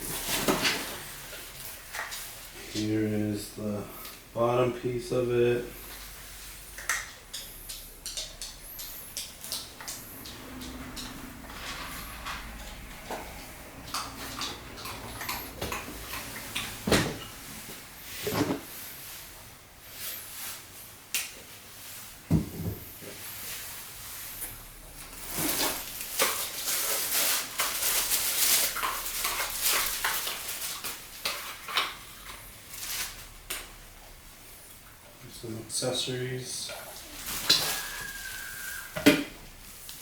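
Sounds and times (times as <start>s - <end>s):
packaging rustling: 0.0s - 2.4s, 25.1s - 33.4s, 37.0s - 39.0s.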